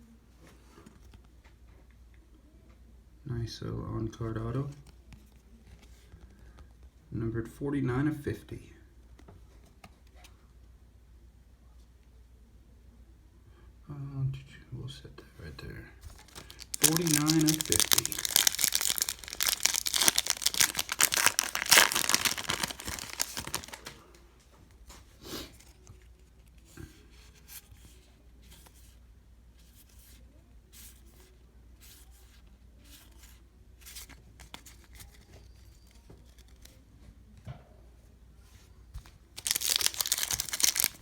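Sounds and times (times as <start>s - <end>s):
wrapper tearing and crinkling: 16.1s - 24.0s, 39.4s - 41.0s
cards rustling and clicking: 16.1s - 24.1s, 33.0s - 36.8s, 39.0s - 41.0s.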